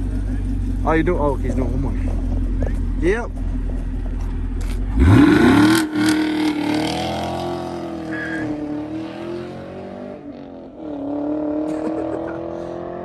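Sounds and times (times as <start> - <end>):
car engine accelerating away: 3.4 - 13.0.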